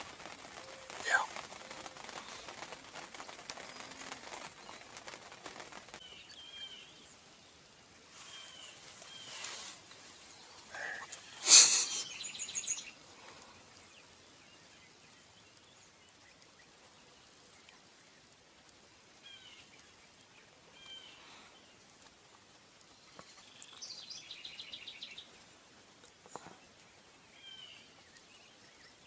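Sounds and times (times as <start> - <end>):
faint rustling: 0.0 - 7.1, 8.0 - 13.9
bird chirps and calls: 10.3 - 13.0.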